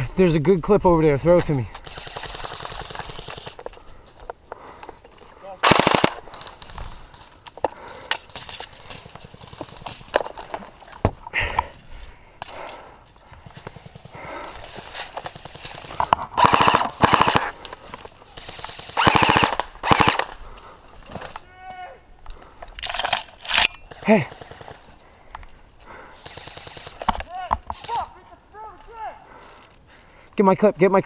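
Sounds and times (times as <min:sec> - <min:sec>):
airsoft guns firing bursts: 0:01.8 - 0:03.6, 0:05.6 - 0:06.6, 0:15.2 - 0:17.6, 0:18.3 - 0:20.4, 0:23.9 - 0:25.0, 0:26.1 - 0:28.1.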